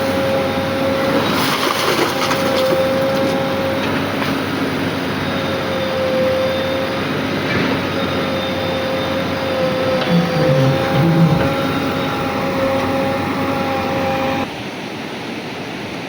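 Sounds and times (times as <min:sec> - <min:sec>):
diesel engine running: 0:00.0 - 0:14.5
steady whine: 0:03.1 - 0:14.5
short low pulses: 0:09.6 - 0:14.5.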